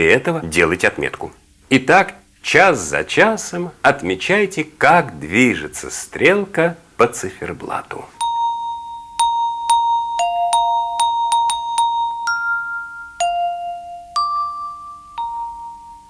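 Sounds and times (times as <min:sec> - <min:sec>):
glockenspiel melody: 0:08.2 - 0:16.0.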